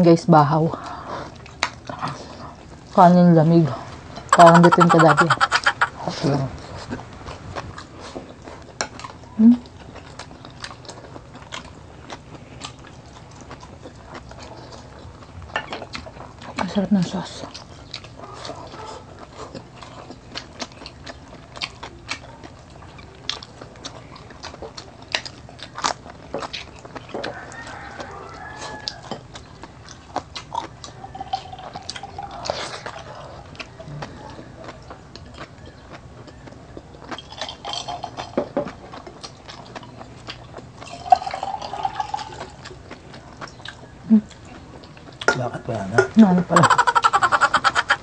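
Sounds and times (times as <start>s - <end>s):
people chewing: 0.0s - 48.0s
mouth clicks and smacks: 4.3s - 6.1s.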